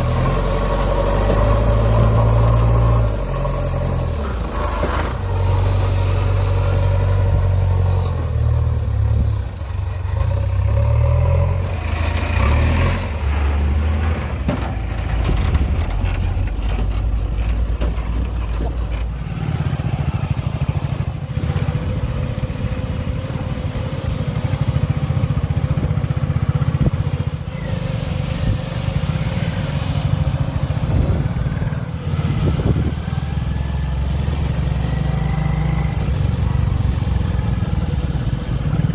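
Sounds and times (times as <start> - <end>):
diesel engine revving: 0.0 - 38.9
knocks and clatter: 13.9 - 19.1.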